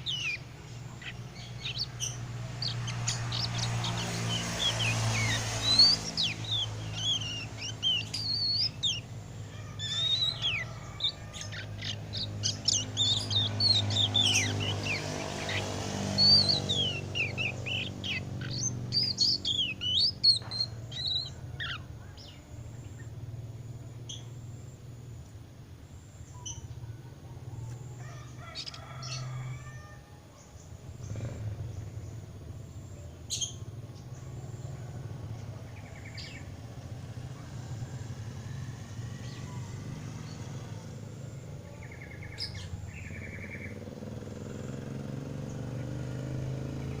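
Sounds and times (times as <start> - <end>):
bird soft chirps and twitters: 9.8 - 23.1.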